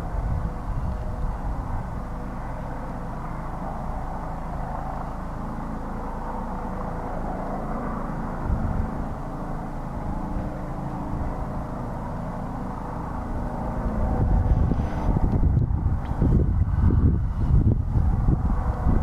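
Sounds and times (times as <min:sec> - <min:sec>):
helicopter running: 0:00.0 - 0:19.0.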